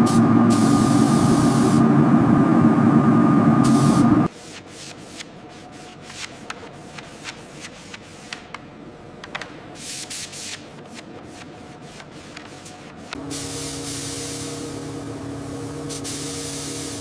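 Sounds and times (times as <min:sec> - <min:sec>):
burst of spraying hiss: 0:00.0 - 0:01.9, 0:13.2 - 0:17.0.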